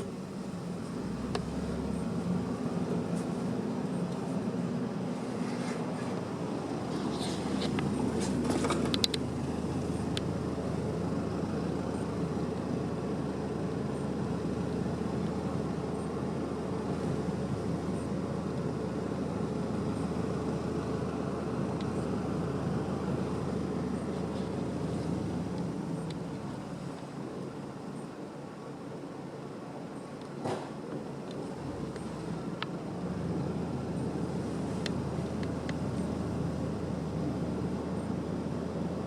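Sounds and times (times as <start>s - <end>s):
sharp clicks: 8.8s - 9.3s.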